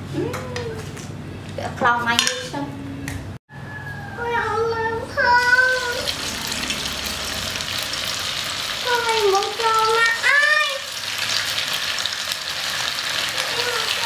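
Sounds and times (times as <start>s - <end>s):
high-pitched voice: 4.2s - 6.7s, 8.8s - 10.9s, 13.3s - 14.0s
meatballs sizzling in hot oil: 5.5s - 14.0s.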